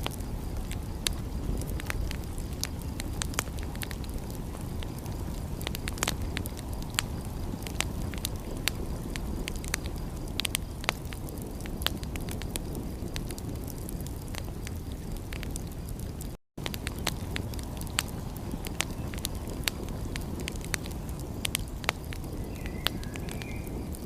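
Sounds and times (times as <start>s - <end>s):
wood fire crackling and popping: 0.0s - 24.0s.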